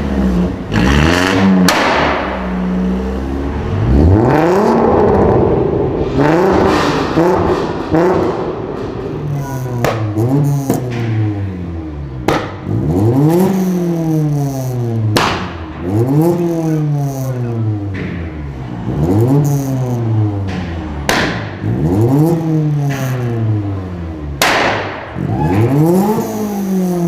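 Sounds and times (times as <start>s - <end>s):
sports car engine revving: 0.0s - 27.0s
sharp engine crack: 1.6s - 2.6s, 4.6s - 11.5s.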